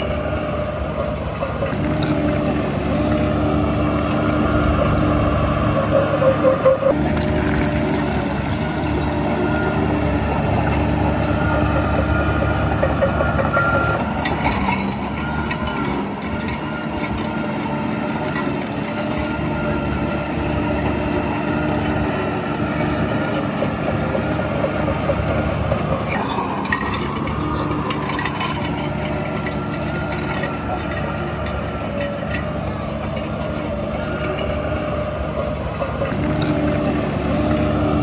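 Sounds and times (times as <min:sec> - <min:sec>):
diesel construction machinery running: 0:00.0 - 0:38.0
metallic clatter: 0:24.8 - 0:34.9.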